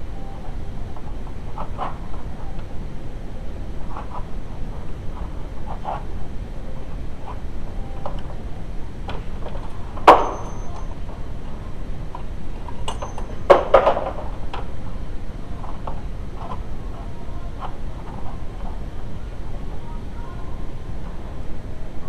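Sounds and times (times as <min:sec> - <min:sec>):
sharp metallic knocks ringing: 0:10.1 - 0:10.9.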